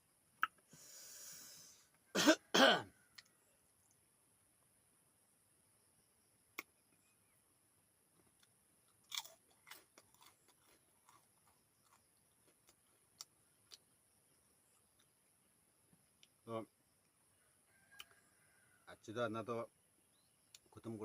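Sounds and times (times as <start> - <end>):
crunchy bites: 8.2 - 14.0
wet chewing clicks: 8.3 - 13.9.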